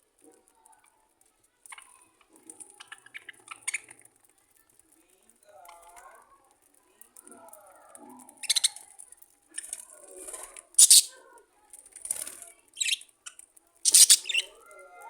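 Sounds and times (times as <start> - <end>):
budgerigars chattering: 10.8 - 11.1, 12.8 - 13.0, 13.9 - 14.5
loud scratchy bursts: 10.8 - 11.1, 13.9 - 14.5.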